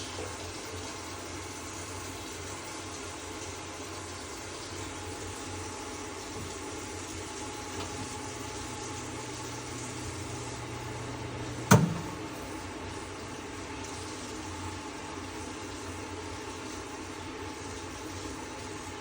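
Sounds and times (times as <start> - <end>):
range hood fan running: 0.0 - 19.0
sharp click: 11.7 - 12.3.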